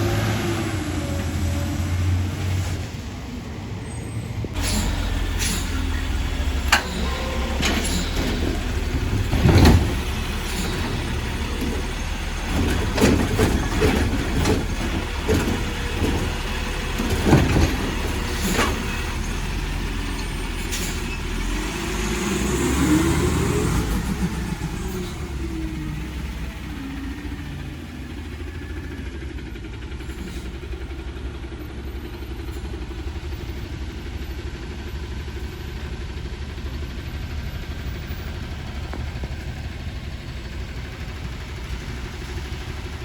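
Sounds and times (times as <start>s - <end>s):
garbage truck engine running: 0.0s - 43.0s
metallic clanks and knocks: 4.6s - 19.4s.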